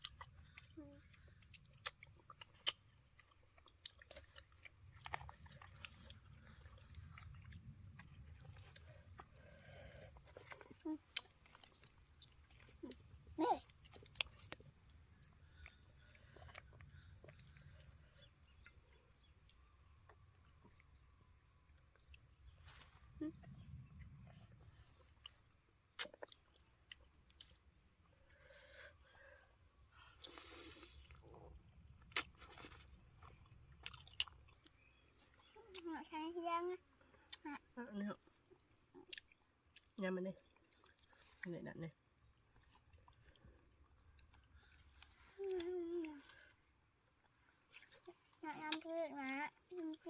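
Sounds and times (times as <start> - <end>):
faint crunchy clicks: 0.0 - 27.8, 38.2 - 50.0
people chewing food: 0.0 - 50.0.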